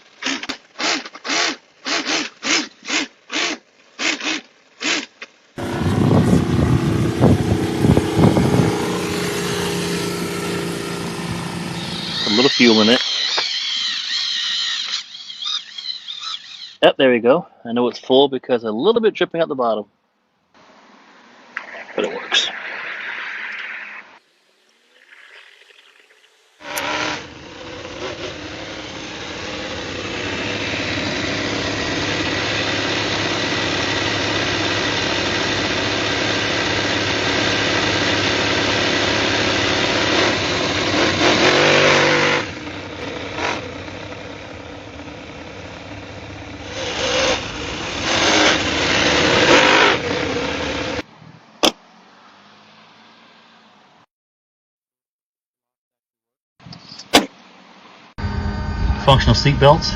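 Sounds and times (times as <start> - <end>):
model car engine running: 0.0 - 16.8, 26.6 - 51.0.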